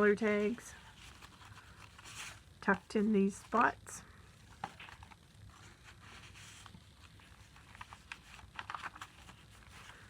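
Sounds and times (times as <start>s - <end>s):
paper rustling: 0.4s - 2.8s, 4.4s - 10.0s.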